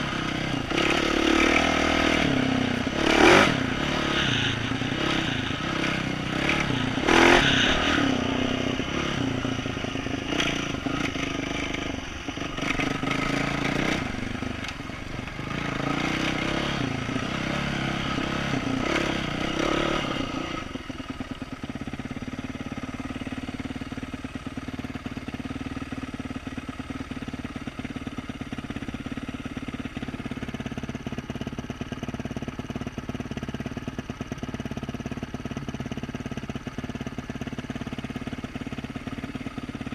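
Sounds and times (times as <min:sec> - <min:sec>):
dirt bike engine revving: 0:00.0 - 0:20.8.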